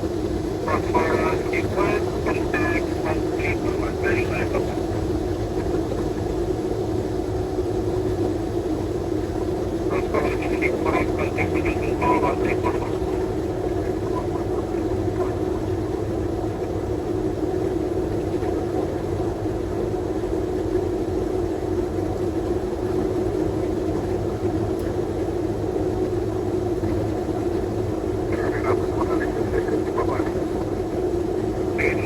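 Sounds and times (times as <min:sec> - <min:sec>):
engine drone: 0:00.0 - 0:06.6, 0:09.4 - 0:19.9, 0:26.2 - 0:32.0.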